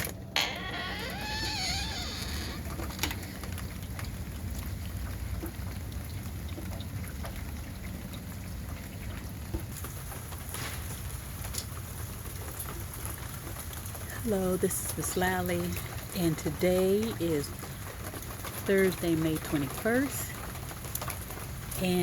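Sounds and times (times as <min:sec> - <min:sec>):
rain falling: 0:00.0 - 0:22.0
raindrops ticking on surfaces: 0:00.0 - 0:22.0.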